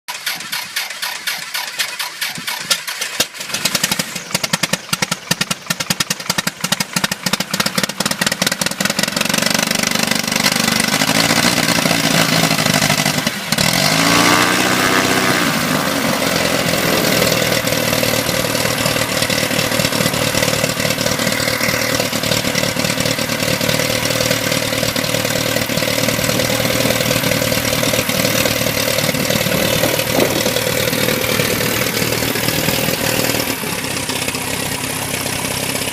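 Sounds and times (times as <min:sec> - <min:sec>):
propeller plane engine starting: 0:00.1 - 0:35.9.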